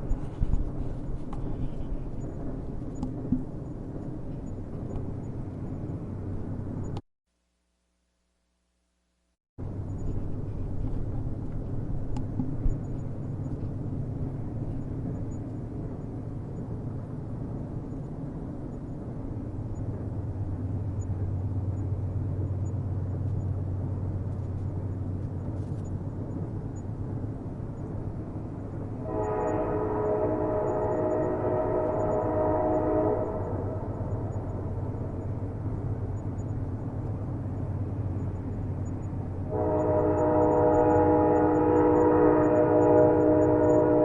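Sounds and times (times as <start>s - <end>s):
train rumbling: 0.0s - 7.0s, 9.6s - 44.0s
train horn chord: 29.0s - 34.1s, 39.5s - 44.0s.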